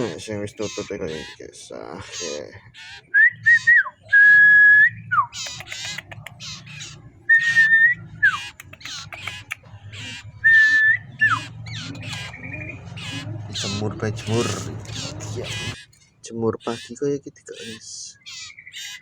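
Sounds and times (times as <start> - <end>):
bird chirps: 0.0 - 19.0
bird whistling notes: 2.2 - 15.8.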